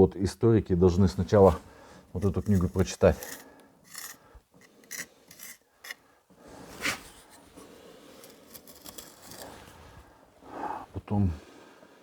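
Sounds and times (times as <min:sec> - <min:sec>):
scraping on brick and mortar: 0:01.3 - 0:06.0, 0:06.7 - 0:10.0.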